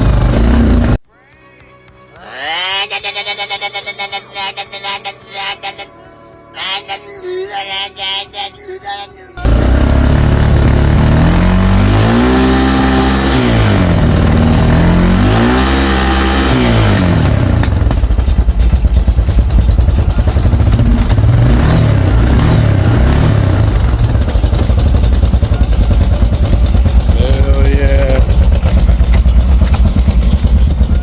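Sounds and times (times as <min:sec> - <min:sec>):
off-road vehicle engine revving: 0:00.0 - 0:01.0, 0:09.4 - 0:31.0.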